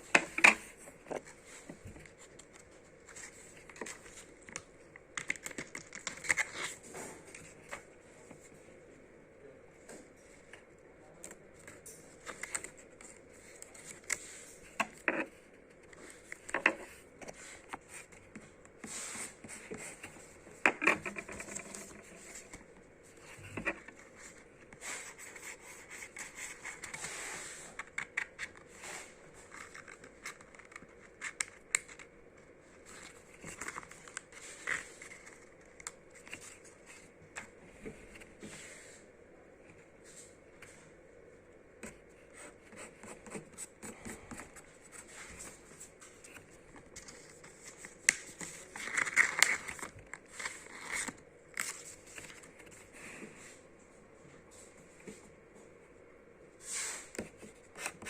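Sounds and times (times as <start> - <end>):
paper packaging crinkling: 46.3 - 52.6.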